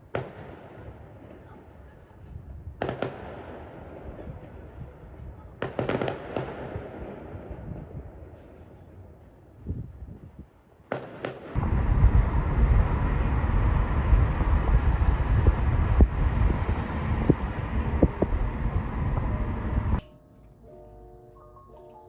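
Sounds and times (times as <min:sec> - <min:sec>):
sharp fireworks pops: 0:00.0 - 0:00.9, 0:02.8 - 0:03.6, 0:05.6 - 0:07.5, 0:10.9 - 0:20.0
fireworks bangs: 0:10.9 - 0:20.0
rumble of fireworks bursts: 0:10.9 - 0:20.0.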